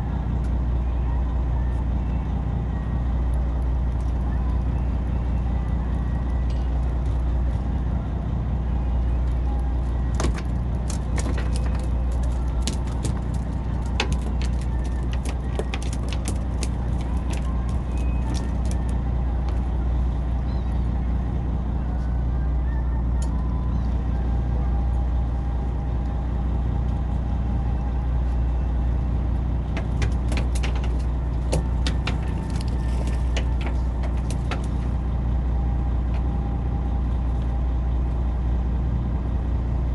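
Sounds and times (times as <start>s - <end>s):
boat engine humming: 0.0s - 39.9s
sharp clicks and clatters: 10.2s - 18.9s, 29.8s - 34.9s.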